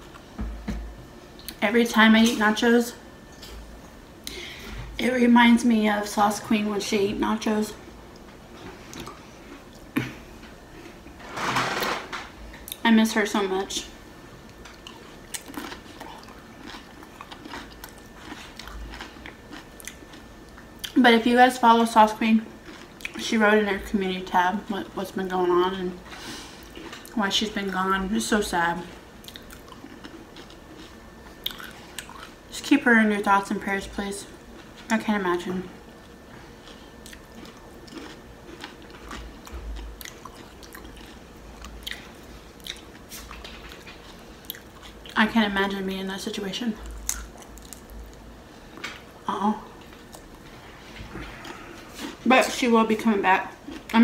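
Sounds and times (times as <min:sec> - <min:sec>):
person chewing: 0:08.1 - 0:11.1, 0:14.5 - 0:21.0, 0:22.6 - 0:23.2, 0:26.5 - 0:27.2, 0:29.2 - 0:32.4, 0:36.0 - 0:45.2, 0:46.8 - 0:49.1, 0:49.8 - 0:52.2
crisp chip crunches: 0:47.0 - 0:48.2.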